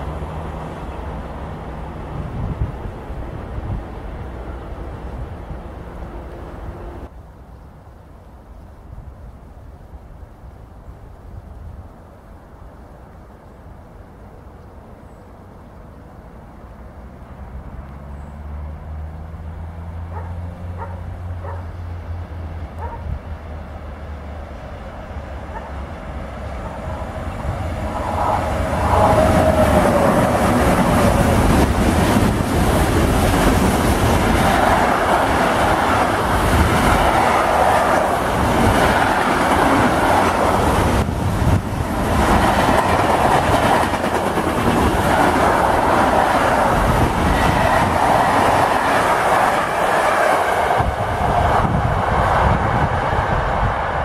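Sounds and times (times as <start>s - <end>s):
train wheels rumbling and clattering: 25.2s - 54.0s.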